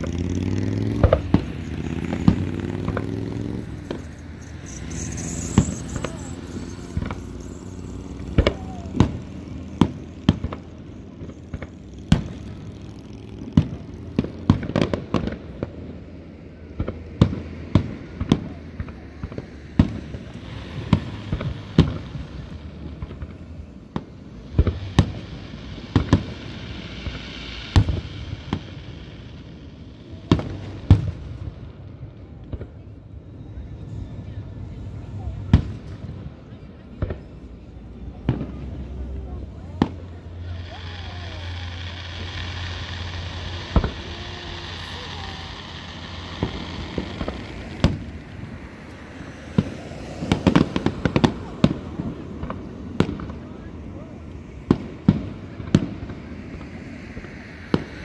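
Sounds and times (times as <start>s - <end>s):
firework shells bursting: 0.0s - 15.6s, 39.8s - 53.4s
hissing crackle of fireworks: 0.0s - 58.0s.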